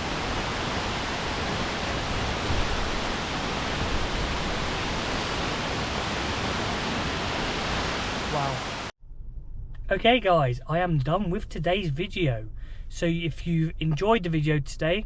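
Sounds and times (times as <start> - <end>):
waterfall roaring: 0.0 - 8.9.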